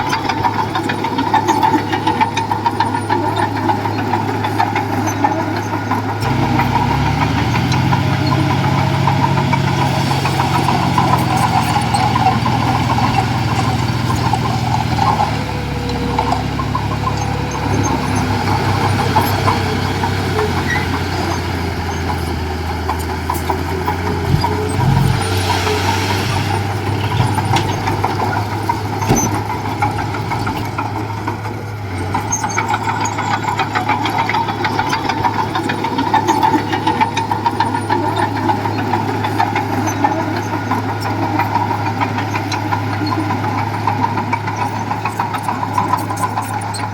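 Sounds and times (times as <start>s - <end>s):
heavy machine diesel engine: 0.0s - 46.9s
knocks: 24.0s - 30.7s.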